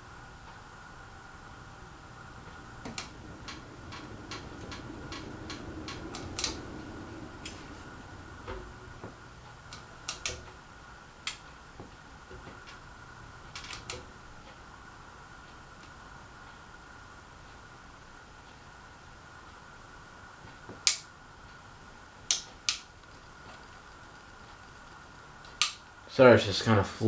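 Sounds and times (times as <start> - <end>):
ceiling fan hum: 0.0 - 27.0
thin steady whine: 0.0 - 27.0
sharp clicks: 2.5 - 8.6, 9.7 - 10.6, 25.4 - 25.9.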